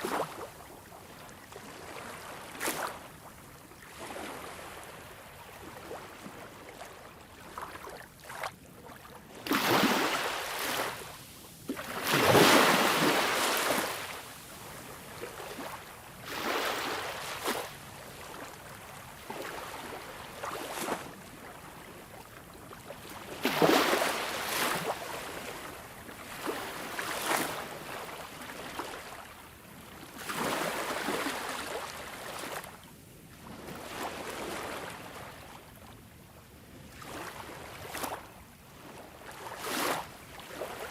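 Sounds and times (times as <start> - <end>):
ocean waves breaking: 9.4 - 11.2, 11.8 - 14.2, 16.3 - 17.7.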